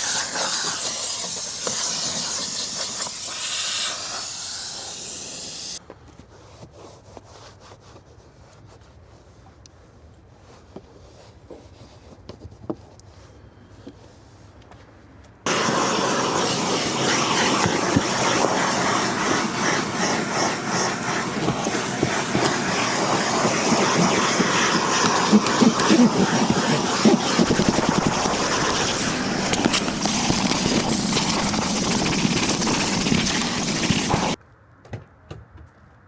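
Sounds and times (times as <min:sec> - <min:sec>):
vacuum cleaner running: 0:00.0 - 0:05.8, 0:15.5 - 0:34.4.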